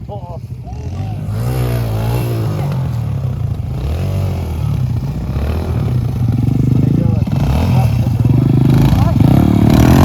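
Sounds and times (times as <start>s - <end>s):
pit bike engine revving: 0.4s - 10.0s.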